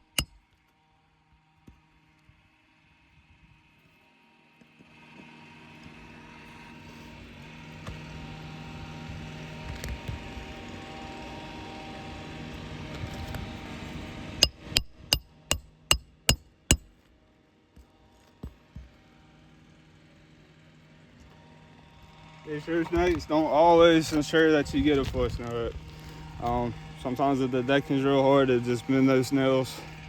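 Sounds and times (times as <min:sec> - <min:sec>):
sharp metal strikes on nail: 0:00.0 - 0:00.4, 0:14.4 - 0:16.9.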